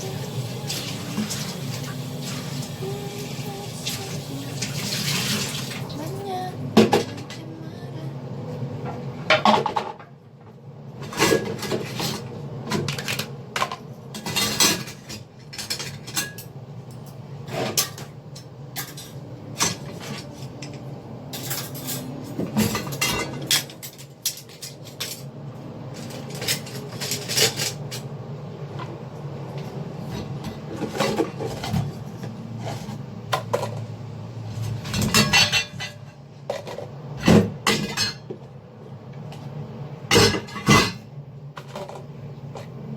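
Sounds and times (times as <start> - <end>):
steady low hum: 5.8 - 42.9
dishes and cutlery clinking: 11.1 - 25.3, 34.8 - 38.3.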